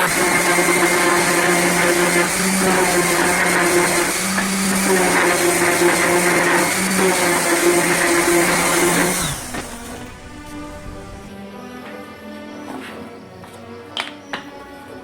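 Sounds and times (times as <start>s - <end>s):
power tool motor running: 0.0s - 11.3s.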